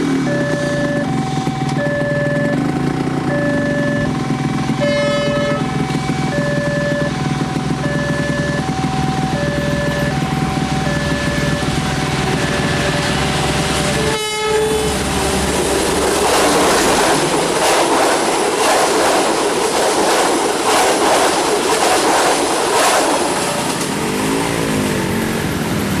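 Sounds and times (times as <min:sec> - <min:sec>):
level crossing warning chimes: 0:00.0 - 0:14.2
diesel locomotive rumble: 0:00.0 - 0:26.0
train wheels clickety-clack: 0:04.0 - 0:24.4
train horn: 0:04.7 - 0:06.6, 0:08.5 - 0:15.5.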